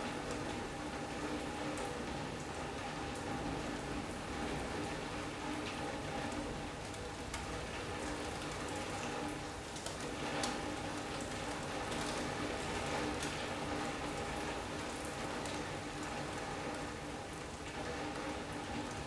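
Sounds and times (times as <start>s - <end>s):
rain falling on a sunroom: 0.0s - 19.0s.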